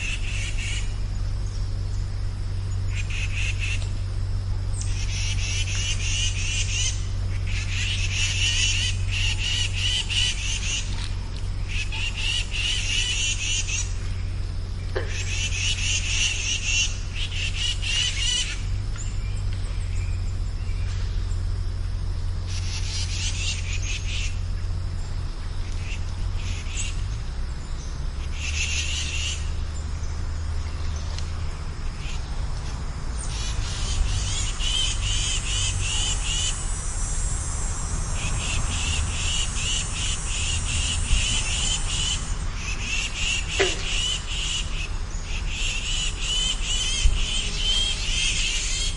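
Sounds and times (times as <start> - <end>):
frogs calling in trills: 0.0 - 48.9.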